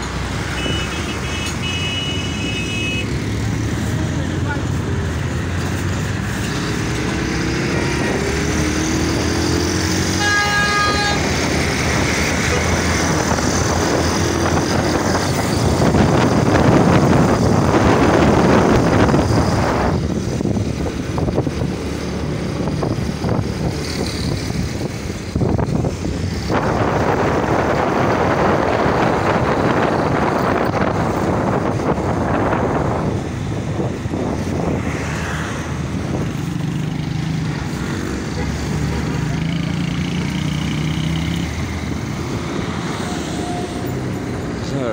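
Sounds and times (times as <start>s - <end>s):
road and wind noise: 0.0s - 44.9s
rush of traffic: 0.0s - 44.9s
vehicle horn: 0.5s - 3.1s, 10.1s - 11.3s.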